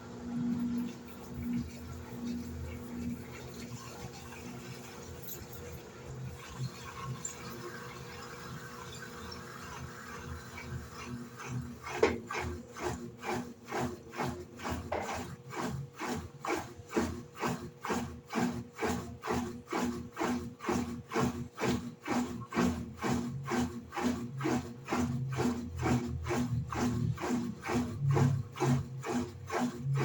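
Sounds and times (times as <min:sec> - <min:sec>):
clothes swishing in water: 0:09.7 - 0:30.0.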